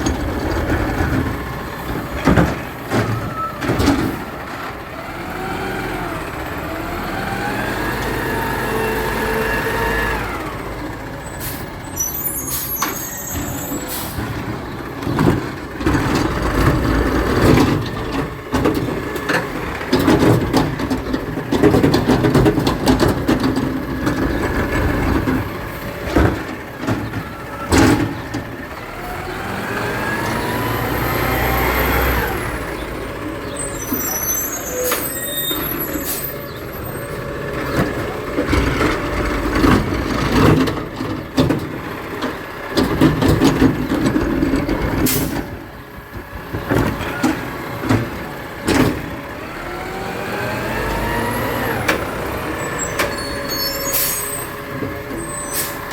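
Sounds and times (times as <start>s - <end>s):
clanks and knocks: 0.0s - 4.6s, 14.2s - 28.6s, 37.6s - 45.5s, 46.1s - 49.2s
garbage truck engine revving: 0.0s - 55.9s.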